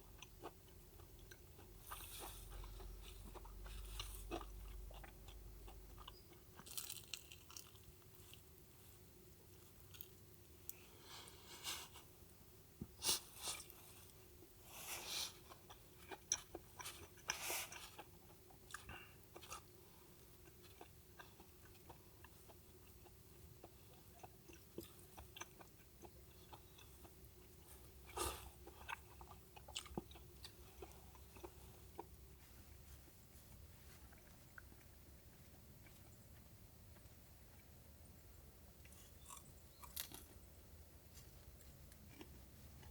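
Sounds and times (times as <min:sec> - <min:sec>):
faint steady hum: 0:00.0 - 0:42.9.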